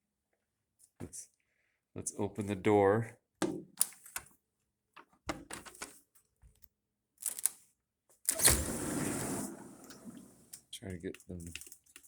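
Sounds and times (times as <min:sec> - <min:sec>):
door scraping open: 0:08.3 - 0:10.5.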